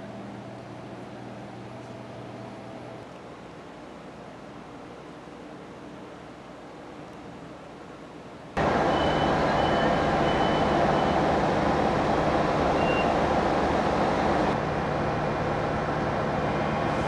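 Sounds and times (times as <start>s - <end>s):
diesel train engines droning: 8.6s - 17.0s
faint high brake squeals: 8.9s - 11.2s, 12.8s - 13.2s.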